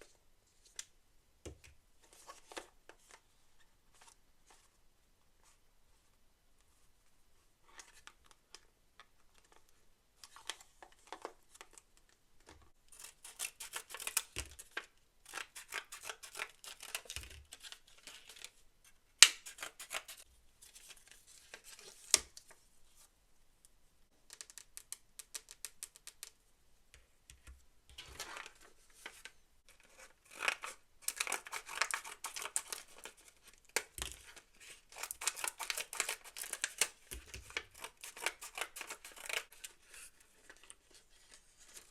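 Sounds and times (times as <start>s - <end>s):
packaging crinkling and tearing: 30.2s - 39.7s.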